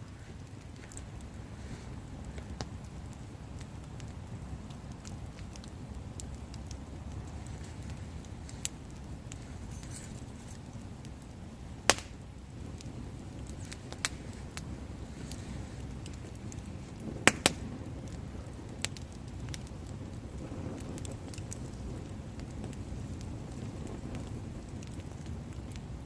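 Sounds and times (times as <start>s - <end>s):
bonfire rumbling: 0.0s - 26.0s
fire crackling: 0.0s - 26.0s
sharp pops from fire: 0.0s - 26.0s.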